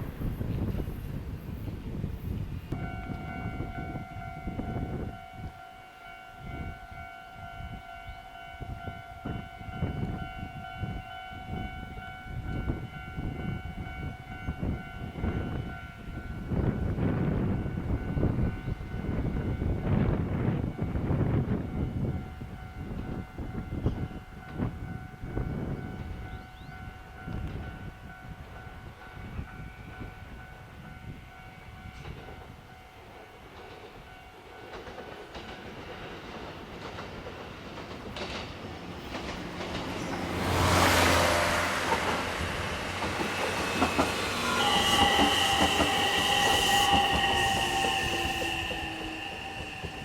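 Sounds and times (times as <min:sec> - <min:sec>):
train horn: 0:02.7 - 0:18.9, 0:40.0 - 0:50.0
train wheel noise: 0:08.6 - 0:50.0.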